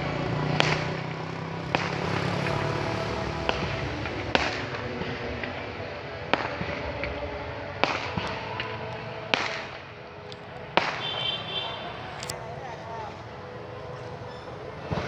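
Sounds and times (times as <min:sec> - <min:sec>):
steady background noise: 0:00.0 - 0:15.0
fireworks bangs: 0:00.3 - 0:15.0
faint fireworks pops: 0:00.4 - 0:12.4.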